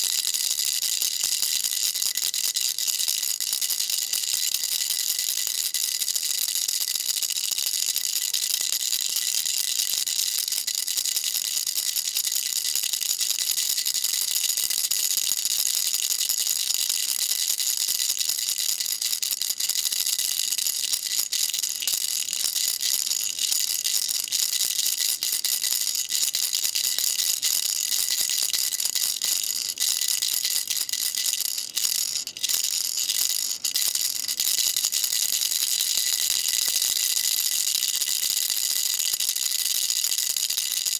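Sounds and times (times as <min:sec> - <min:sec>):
baby rattle shaken: 0:17.0 - 0:40.9.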